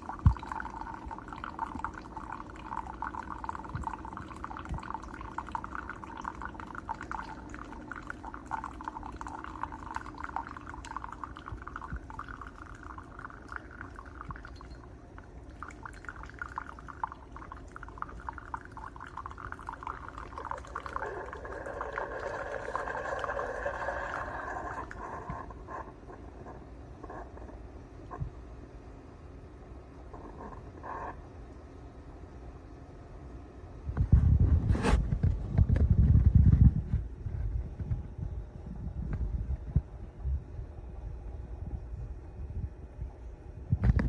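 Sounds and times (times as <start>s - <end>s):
coffee pouring into cup: 0.0s - 26.0s.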